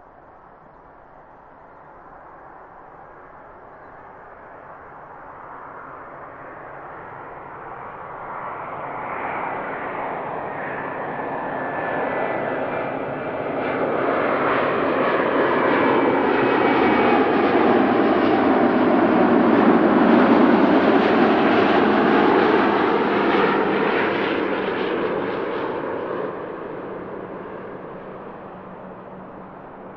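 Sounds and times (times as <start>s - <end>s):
jet engines passing by: 0.0s - 29.9s.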